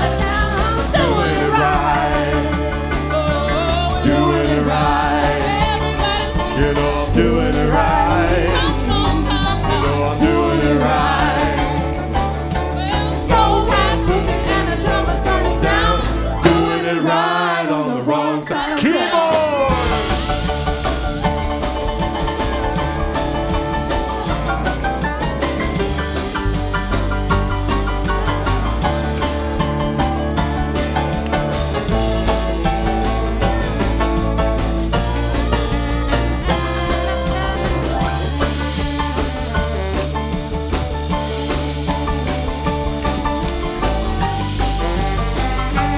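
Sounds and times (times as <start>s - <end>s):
keyboard solo: 0.0s - 17.2s, 19.7s - 45.9s
bass and drums: 0.0s - 17.8s, 18.5s - 45.9s.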